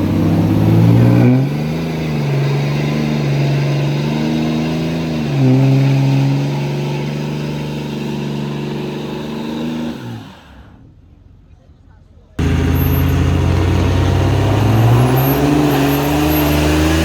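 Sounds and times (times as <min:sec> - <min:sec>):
pickup truck engine revving: 0:00.0 - 0:10.8, 0:12.4 - 0:17.0.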